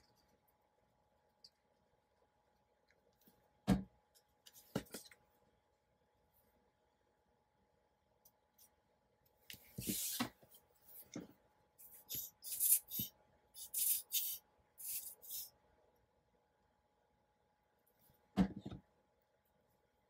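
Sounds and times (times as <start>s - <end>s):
scratchy rubbing on paper: 11.8s - 15.5s.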